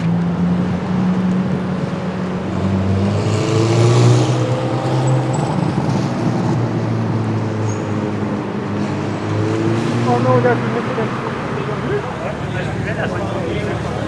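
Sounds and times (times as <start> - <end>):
car engine accelerating: 0.0 - 14.0
car engines running: 0.0 - 14.0.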